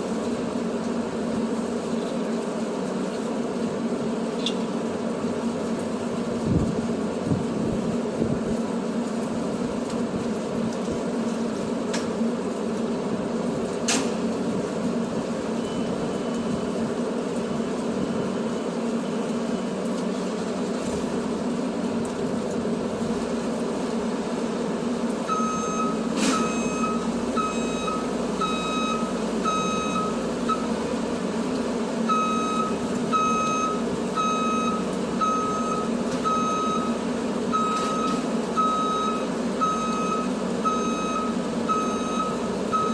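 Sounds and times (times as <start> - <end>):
truck engine running: 0.0 - 42.9
reversing alarm beeping: 15.5 - 16.7, 25.3 - 30.8, 32.1 - 42.9.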